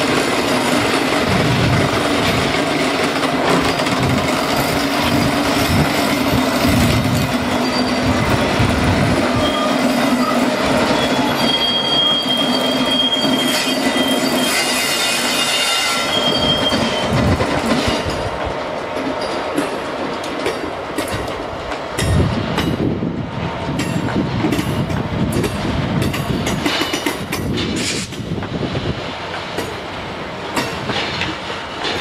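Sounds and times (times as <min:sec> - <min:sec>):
diesel locomotive engine running: 0:00.0 - 0:11.5
wheels squealing: 0:06.7 - 0:08.4, 0:09.4 - 0:18.2
wheels clattering over rails: 0:30.5 - 0:32.0.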